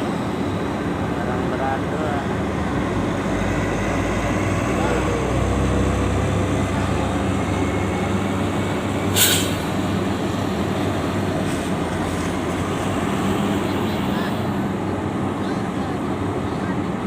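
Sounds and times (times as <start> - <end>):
truck diesel engines humming: 0.0 - 17.0
air brake hiss: 9.1 - 9.8.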